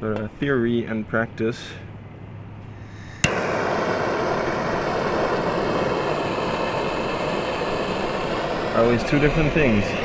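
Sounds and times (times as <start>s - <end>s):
gas torch flame rushing: 2.6s - 10.0s
gas torch igniter click: 2.8s - 10.0s.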